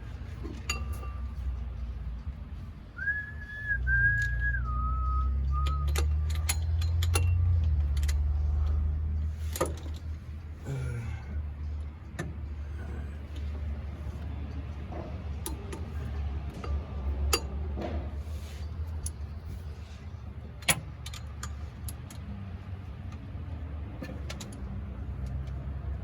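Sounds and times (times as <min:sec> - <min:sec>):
person whistling: 0:03.0 - 0:06.2.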